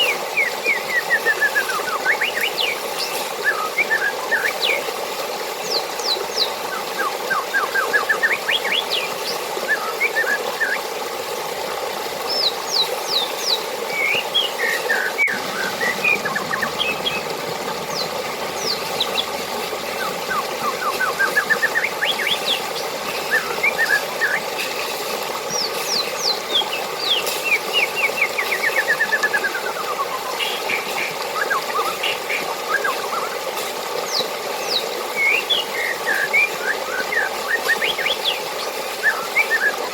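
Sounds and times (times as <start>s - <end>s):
birds chirping and trilling: 0.0s - 4.9s, 5.6s - 10.8s, 12.2s - 24.8s, 25.5s - 33.4s, 34.1s - 39.8s
running water: 0.0s - 39.9s.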